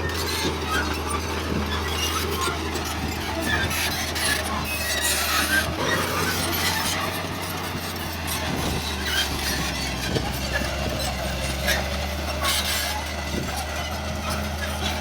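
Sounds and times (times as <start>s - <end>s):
bulldozer diesel engine drone: 0.0s - 15.0s
crawler tracks squeaking: 0.0s - 15.0s.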